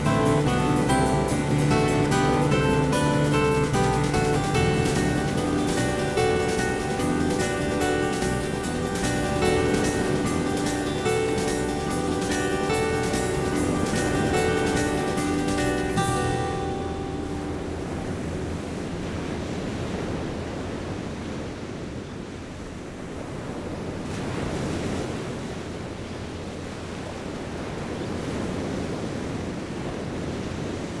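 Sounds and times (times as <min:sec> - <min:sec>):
guitar music: 0:00.0 - 0:19.1
ocean surf on rocky shore: 0:00.0 - 0:31.0.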